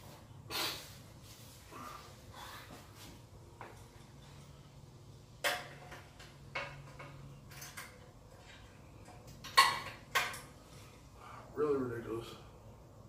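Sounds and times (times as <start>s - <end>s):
metal clanks and clinks: 5.4s - 10.5s.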